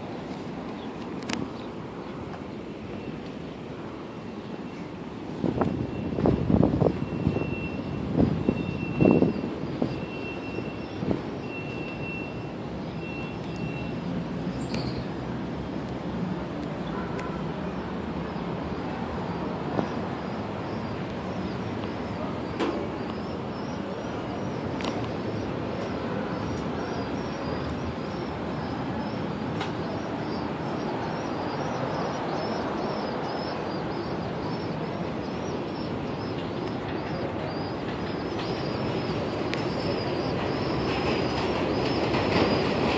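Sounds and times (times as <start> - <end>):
small birds chirping: 0.0 - 3.6, 4.3 - 42.8
city noise: 0.0 - 42.9.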